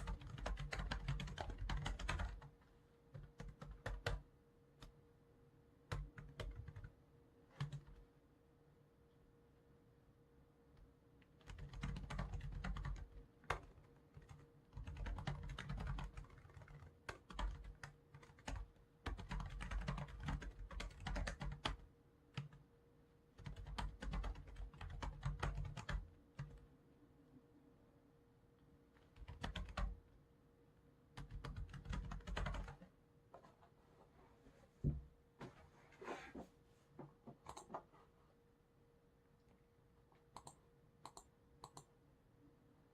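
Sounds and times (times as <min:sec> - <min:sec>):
computer keyboard typing: 0:00.0 - 0:04.2, 0:05.9 - 0:06.9, 0:07.5 - 0:08.0, 0:11.3 - 0:21.8, 0:22.4 - 0:22.6, 0:23.4 - 0:26.6, 0:29.0 - 0:30.0, 0:31.2 - 0:32.9, 0:37.4 - 0:37.8, 0:40.3 - 0:41.9.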